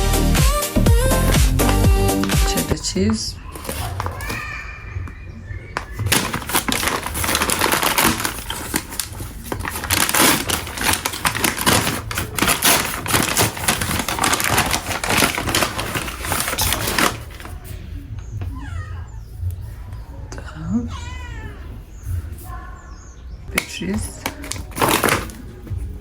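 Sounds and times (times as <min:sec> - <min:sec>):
cheese grating on metal grater: 0:06.2 - 0:17.5.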